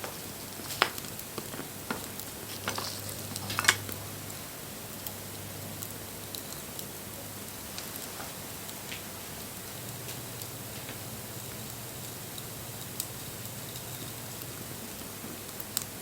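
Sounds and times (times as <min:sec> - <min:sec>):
sharp pops from fire: 0:00.0 - 0:04.0
wood fire crackling and hissing: 0:00.0 - 0:16.0.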